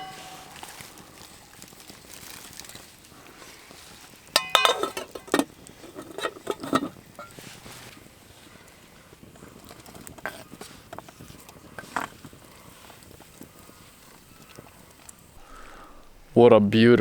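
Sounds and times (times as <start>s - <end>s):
metal cookware clinking: 0.0s - 1.3s, 4.3s - 7.5s.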